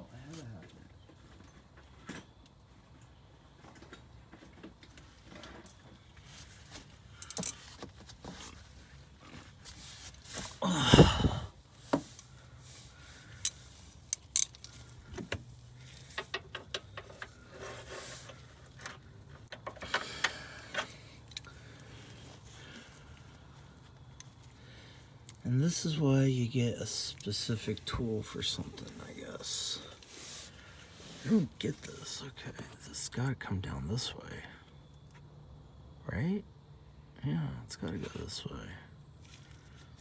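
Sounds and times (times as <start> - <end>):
metal hand tools clinking: 7.2 - 7.6, 13.4 - 14.8.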